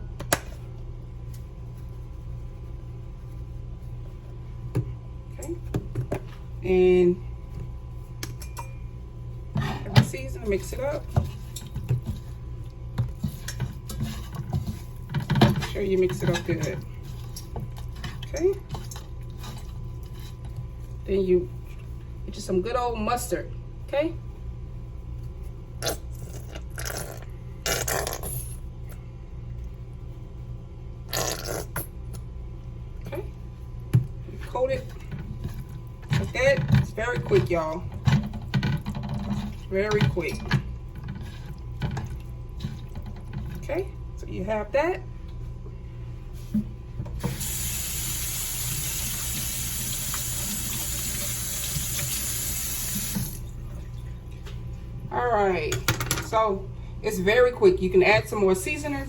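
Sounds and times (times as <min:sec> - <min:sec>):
steady low hum: 0:00.0 - 0:59.0
tap running into sink: 0:48.6 - 0:53.4.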